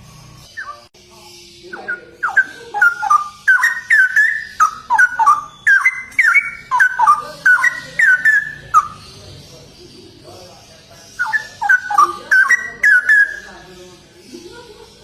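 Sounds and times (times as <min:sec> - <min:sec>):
bird singing whistled notes: 0:00.0 - 0:09.2, 0:11.1 - 0:13.7.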